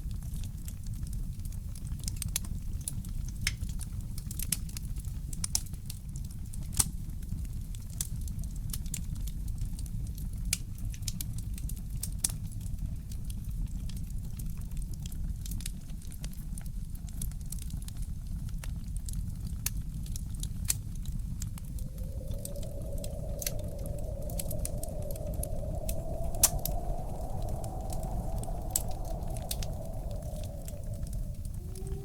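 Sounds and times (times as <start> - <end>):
fireplace crackling: 21.6 - 32.0.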